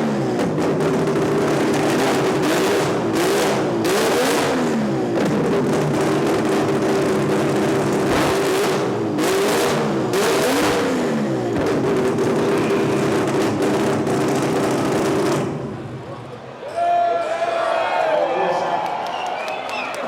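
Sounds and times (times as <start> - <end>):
rotary engine revving hard: 0.0 - 15.8.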